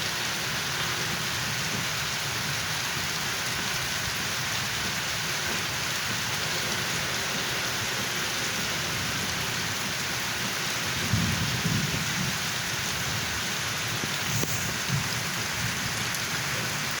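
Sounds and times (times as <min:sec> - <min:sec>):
heavy rain pattering: 0:00.0 - 0:17.0
low rumbles: 0:10.9 - 0:16.5.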